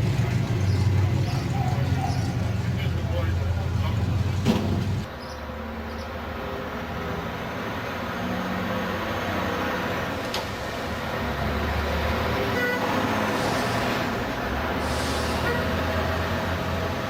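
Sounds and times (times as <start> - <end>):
old car engines rumbling: 0.0 - 5.2.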